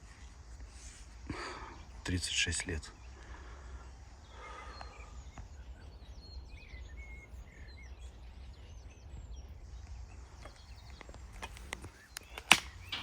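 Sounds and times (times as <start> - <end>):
songbirds chirping and whistling: 0.0 - 13.0
faint clicks: 9.8 - 13.0.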